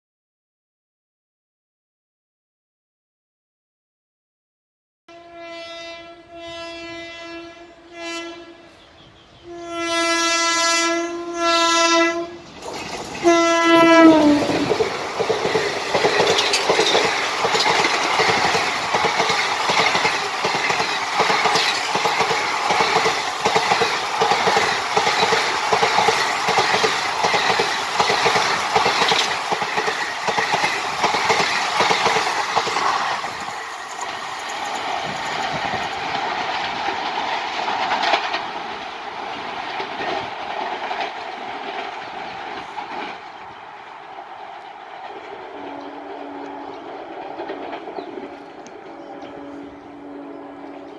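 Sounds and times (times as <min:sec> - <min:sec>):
locomotive horn blasts: 0:05.1 - 0:08.8, 0:09.4 - 0:12.5, 0:13.2 - 0:14.6, 0:45.6 - 0:46.9, 0:48.8 - 0:50.9
train wheels clacking over rail joints: 0:14.3 - 0:43.4.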